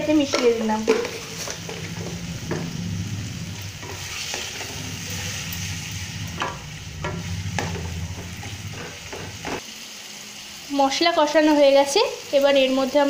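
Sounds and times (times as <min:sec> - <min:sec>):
masala sizzling in oil: 0:00.0 - 0:13.0
spatula scraping and tapping pan: 0:00.1 - 0:02.8, 0:03.8 - 0:09.6
steady low hum: 0:00.9 - 0:09.6.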